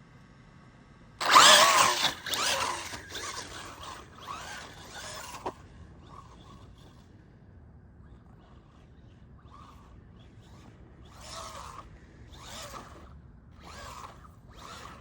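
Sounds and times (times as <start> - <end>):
electric motor whining: 1.2 - 7.0, 9.4 - 15.0.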